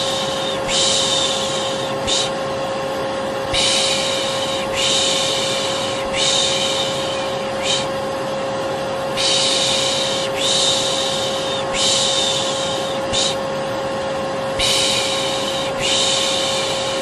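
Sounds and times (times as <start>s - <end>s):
person shushing: 0.0s - 2.4s, 3.5s - 8.0s, 9.2s - 13.4s, 14.6s - 17.0s
vacuum cleaner running: 0.0s - 17.0s.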